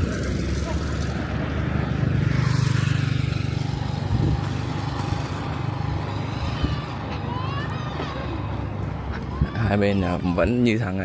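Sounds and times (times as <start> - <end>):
small engine running: 0.0 - 8.7.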